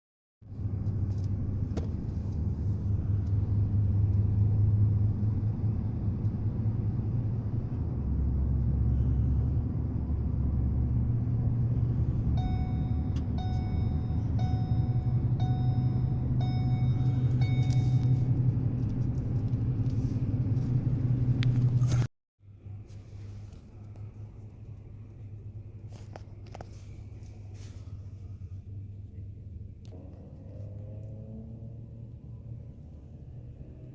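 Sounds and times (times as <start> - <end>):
heavy road traffic rumble: 0.4 - 33.9
horn honking: 12.2 - 19.0.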